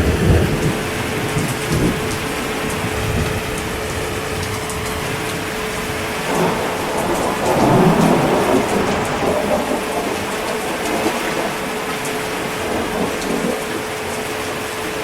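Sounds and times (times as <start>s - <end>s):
heavy rain: 0.0s - 15.0s
thunder rumbling: 0.0s - 15.0s.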